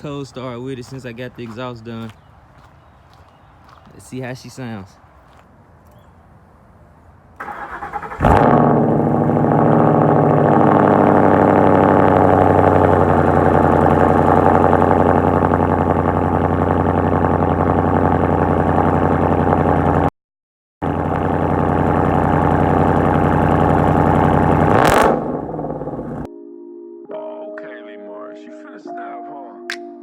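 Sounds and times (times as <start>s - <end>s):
starter motor cranking: 7.4s - 8.7s
car engine starting and idling: 7.4s - 20.1s, 20.8s - 26.3s.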